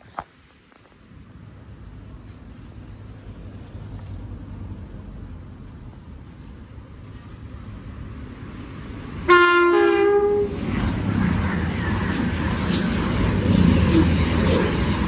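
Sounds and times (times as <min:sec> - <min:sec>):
train rumbling past: 0:00.3 - 0:15.0
train two-tone horn: 0:09.3 - 0:10.6.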